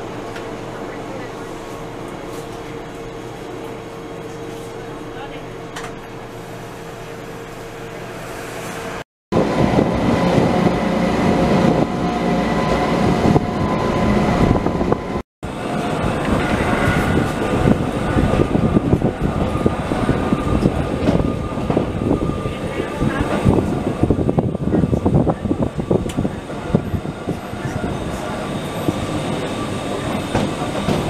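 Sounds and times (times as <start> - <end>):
train wheels rumbling on rails: 6.8 - 31.0.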